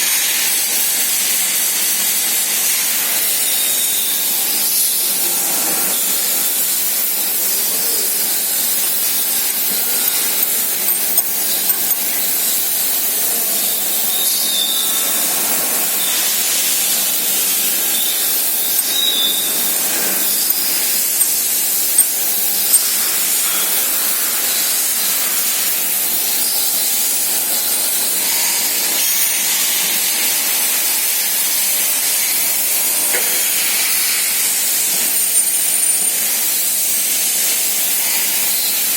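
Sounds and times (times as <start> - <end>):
surface grinder running: 9.5 - 12.2.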